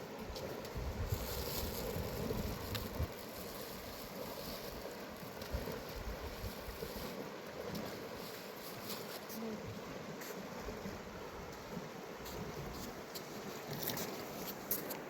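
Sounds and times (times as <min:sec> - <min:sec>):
mountain river rushing: 0:00.0 - 0:15.0
wind gusting on microphone: 0:00.4 - 0:03.6.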